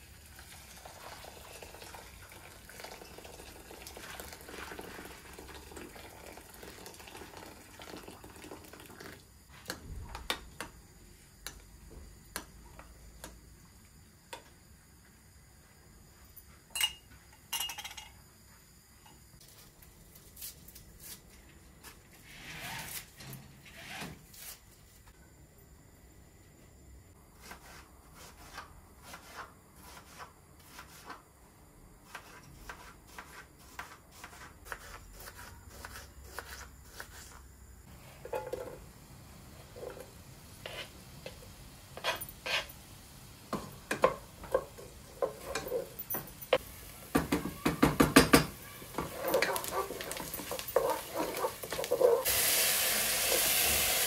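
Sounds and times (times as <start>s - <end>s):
dishes and utensils clinking: 16.7s - 18.2s, 43.9s - 46.6s.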